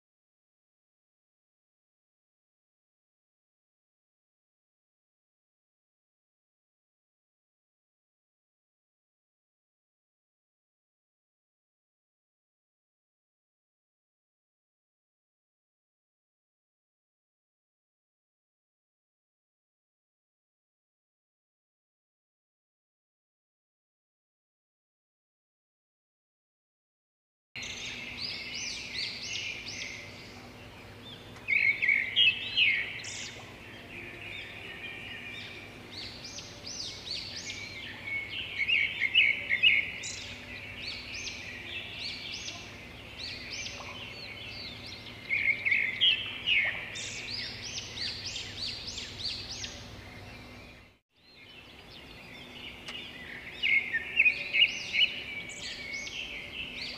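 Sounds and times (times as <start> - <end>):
birds chirping and twittering: 27.6 - 56.9.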